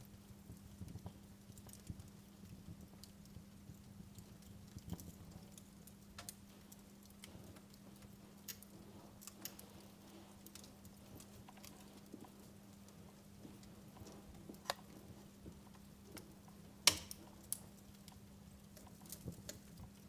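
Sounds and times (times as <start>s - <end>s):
steady low hum: 0.0s - 20.0s
wood fire crackling: 0.0s - 20.0s.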